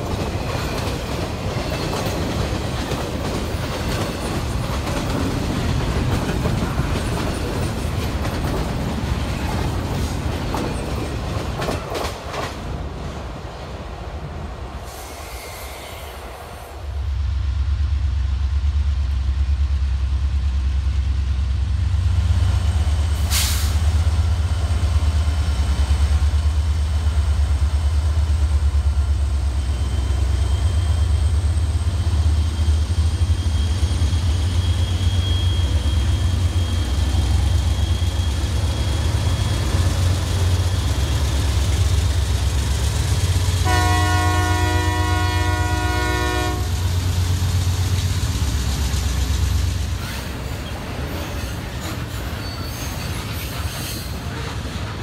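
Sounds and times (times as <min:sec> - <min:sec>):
freight train rumbling past: 0:00.0 - 0:55.0
multi-note train horn: 0:43.6 - 0:47.0.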